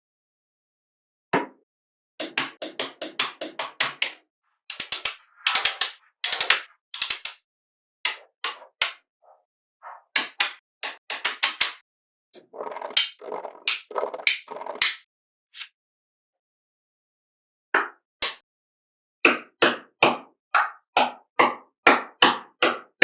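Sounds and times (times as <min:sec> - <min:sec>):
magnetic balls clicking together: 0:04.7 - 0:07.4, 0:12.4 - 0:15.0.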